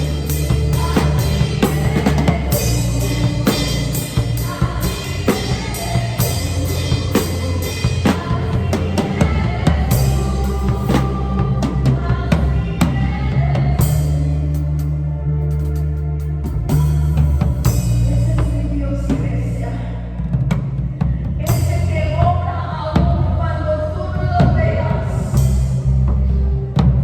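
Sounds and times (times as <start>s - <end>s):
drum kit playing steady beat: 0.0s - 14.9s, 16.5s - 18.6s
backing track bass notes: 0.0s - 27.0s.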